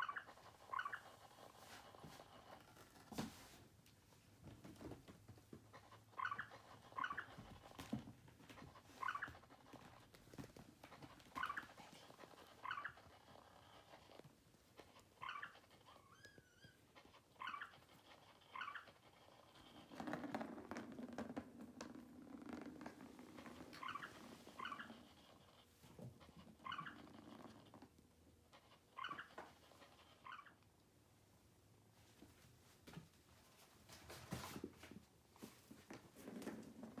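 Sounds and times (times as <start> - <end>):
cat purring: 4.7 - 30.5, 36.1 - 37.0
faint short high squeaks: 15.2 - 16.8.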